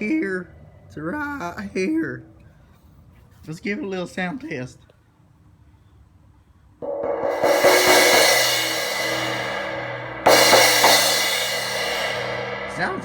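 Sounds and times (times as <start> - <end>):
cracked crash cymbal: 6.8 - 13.0.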